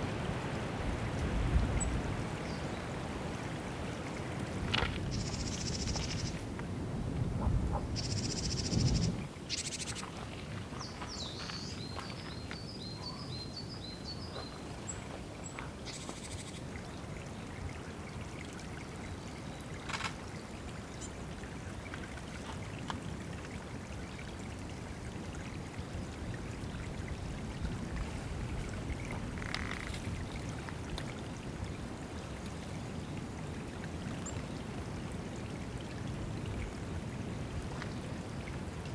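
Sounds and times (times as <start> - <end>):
water running and trickling: 16.7 - 38.9.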